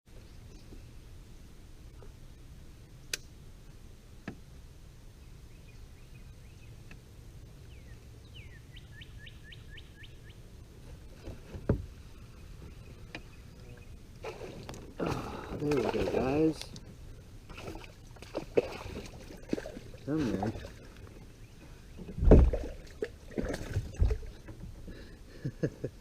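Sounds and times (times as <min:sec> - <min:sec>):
bird chirping: 0:07.6 - 0:10.4
low thump against kayak: 0:11.2 - 0:12.0, 0:22.0 - 0:22.8.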